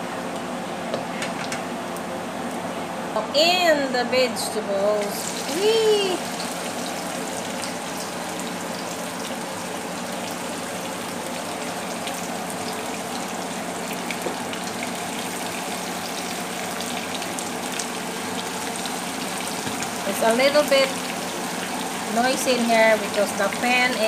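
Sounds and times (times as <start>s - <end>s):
range hood fan: 0.0s - 24.0s
vegetables sizzling in a wok: 5.0s - 24.0s.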